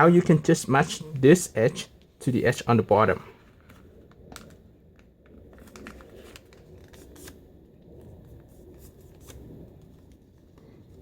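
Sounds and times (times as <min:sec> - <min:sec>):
paper crackling as folded: 0:05.5 - 0:07.5.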